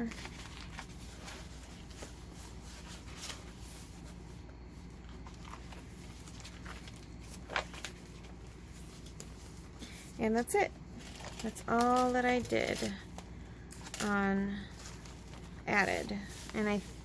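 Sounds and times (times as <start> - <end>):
paper rustling: 0.0 - 10.0, 14.6 - 17.0
steady low hum: 0.0 - 17.0.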